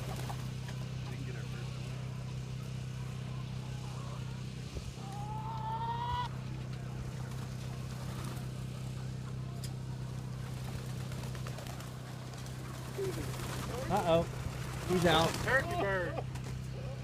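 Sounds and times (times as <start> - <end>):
steady low hum: 0.0 - 17.0
chickens calling faintly: 2.0 - 8.4.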